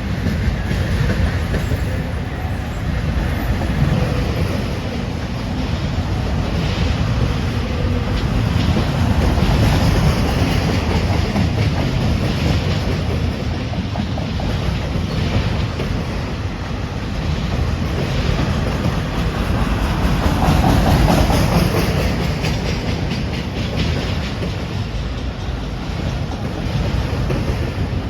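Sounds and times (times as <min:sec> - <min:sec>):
train wheels rumbling on rail: 0:00.0 - 0:28.0
wheels clicking over rail joints: 0:03.0 - 0:28.0.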